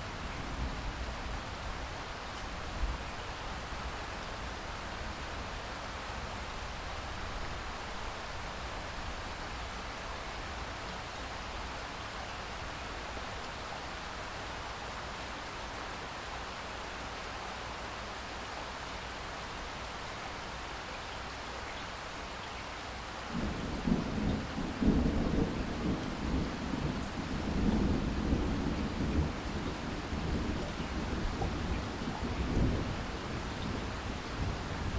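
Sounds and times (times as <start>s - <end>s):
thunder rumbling: 23.4s - 34.9s.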